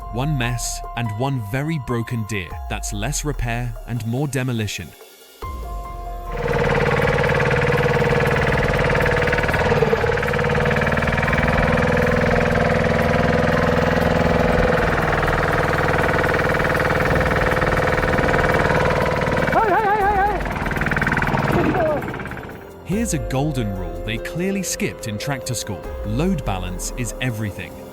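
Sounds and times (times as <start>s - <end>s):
tractor engine running hard: 6.3s - 24.7s.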